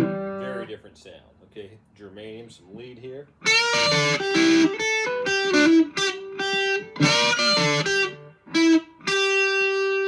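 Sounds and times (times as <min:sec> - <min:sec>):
distorted electric guitar lead: 0:00.0 - 0:00.6, 0:03.5 - 0:10.0.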